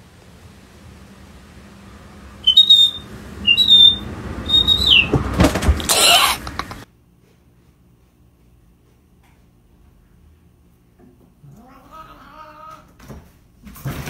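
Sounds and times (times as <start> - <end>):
high whistle-like chirps: 2.4 - 5.2.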